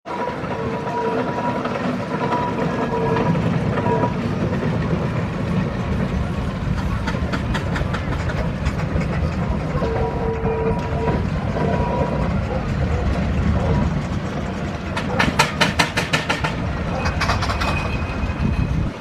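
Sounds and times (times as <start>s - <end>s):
steam engines rumbling and clattering: 0.1s - 19.0s
sharp clicks and knocks: 6.7s - 9.9s, 14.9s - 18.0s.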